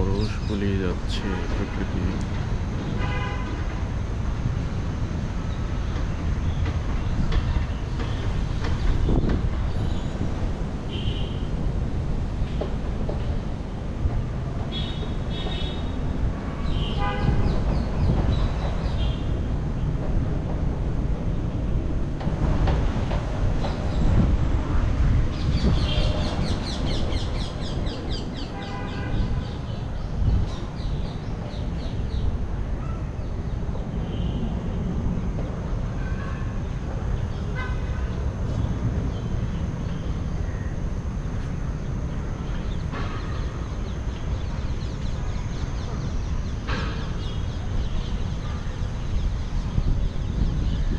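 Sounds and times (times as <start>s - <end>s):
birds chirping: 0.0s - 3.7s, 25.3s - 34.5s.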